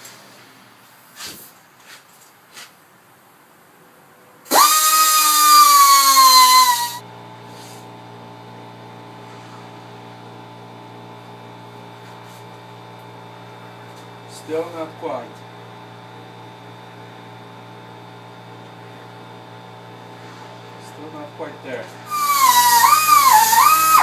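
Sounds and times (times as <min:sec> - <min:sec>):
low electrical hum: 0:00.0 - 0:24.0
rotary tool whining while grinding: 0:04.5 - 0:07.0, 0:22.1 - 0:24.0.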